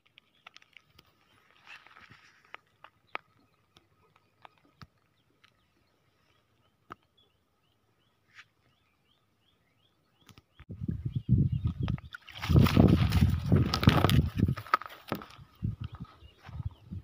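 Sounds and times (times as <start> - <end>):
bird chirping: 2.6 - 12.6.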